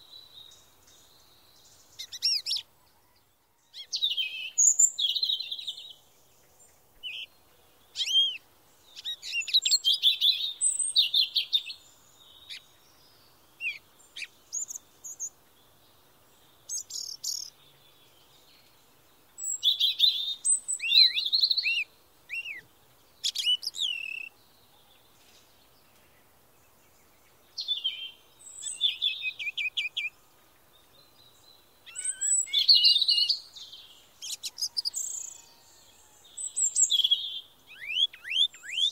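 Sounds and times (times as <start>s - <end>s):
songbirds chirping and trilling: 0.0s - 38.9s
down-curving whistled bird notes: 31.9s - 35.5s, 36.5s - 38.9s.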